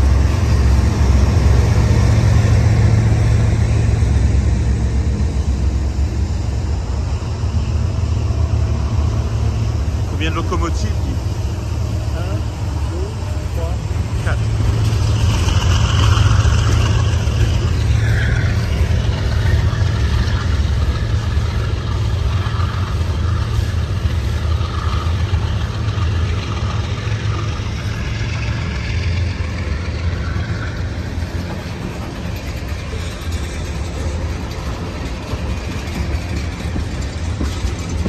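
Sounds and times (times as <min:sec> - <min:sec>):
freight train wheels rumbling: 0:00.0 - 0:38.0.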